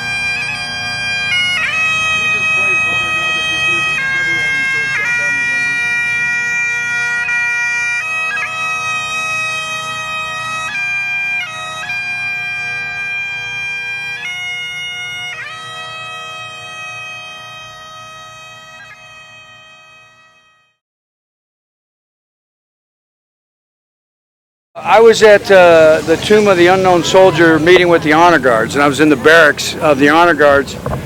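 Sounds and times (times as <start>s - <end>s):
bagpipes playing slow melody: 0.0s - 20.8s.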